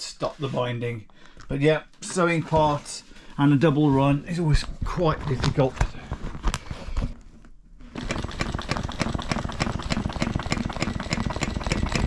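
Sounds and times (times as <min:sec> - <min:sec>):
sewing machine stitching: 0:07.9 - 0:12.0.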